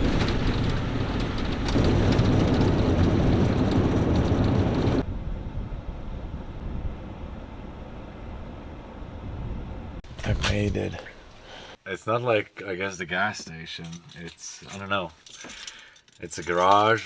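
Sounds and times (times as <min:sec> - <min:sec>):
truck engine: 0:00.0 - 0:05.2
road noise: 0:00.0 - 0:11.8.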